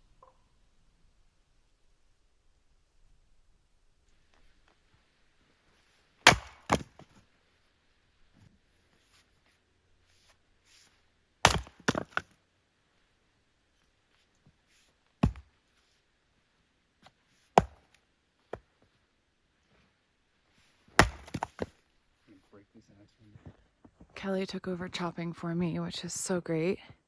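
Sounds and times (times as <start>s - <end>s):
wood splitting cracks: 6.2s - 7.1s, 11.5s - 12.3s, 17.6s - 18.0s, 21.0s - 21.8s
axe chopping firewood: 6.2s - 7.2s, 11.4s - 12.3s, 15.2s - 15.5s, 17.6s - 18.6s, 20.9s - 21.8s.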